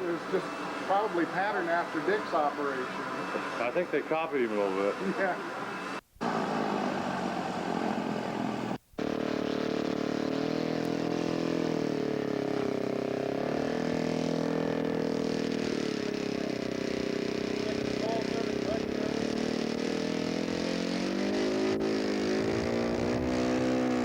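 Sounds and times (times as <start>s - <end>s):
model airplane engine running: 8.0s - 20.8s.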